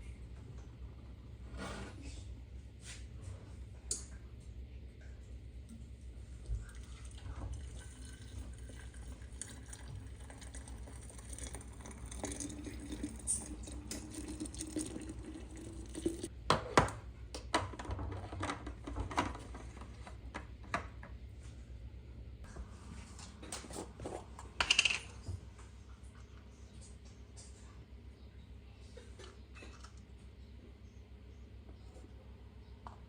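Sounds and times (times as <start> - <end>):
liquid pouring into container: 6.6 - 16.3.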